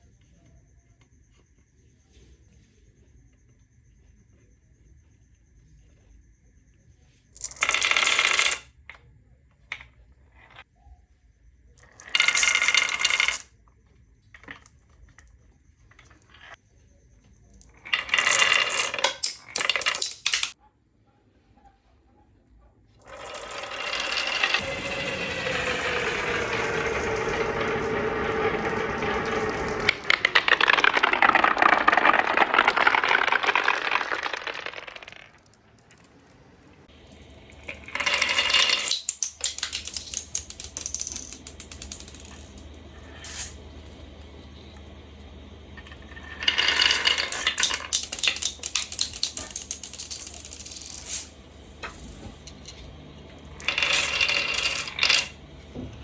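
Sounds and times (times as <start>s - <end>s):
marbles clattering: 7.4s - 8.7s, 11.8s - 13.5s, 17.6s - 20.6s, 23.1s - 44.0s, 45.7s - 55.5s
marbles rolling with ringing: 7.4s - 9.0s, 11.8s - 13.6s, 17.5s - 20.6s, 23.0s - 55.6s.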